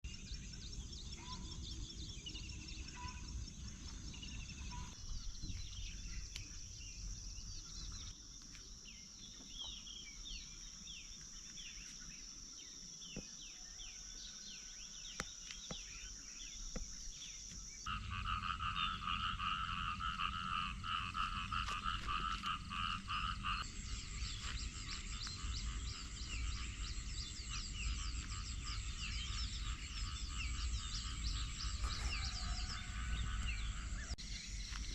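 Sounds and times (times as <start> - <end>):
birds chirping: 0.1 - 34.9
high insect drone: 16.2 - 34.9
frog chorus croaking: 17.8 - 34.8.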